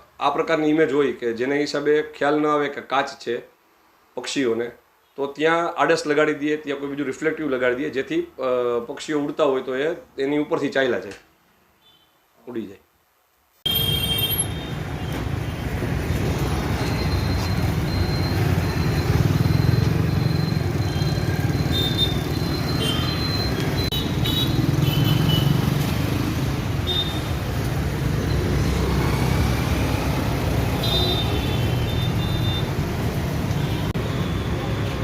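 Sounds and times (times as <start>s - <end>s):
rumble of passing vehicles: 13.7s - 35.0s.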